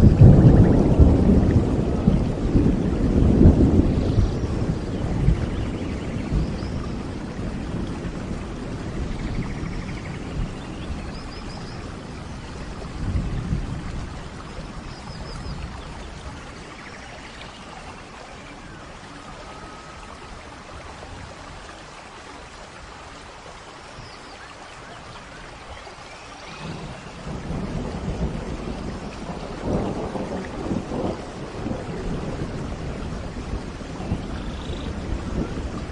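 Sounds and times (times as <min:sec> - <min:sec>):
rolling thunder: 0:00.0 - 0:18.2, 0:26.5 - 0:35.9
steady rain: 0:00.0 - 0:35.9.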